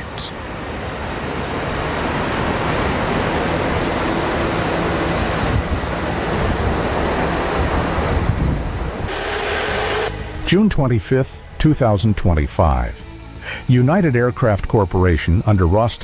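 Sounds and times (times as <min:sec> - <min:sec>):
jet engine roar: 0:02.5 - 0:10.5.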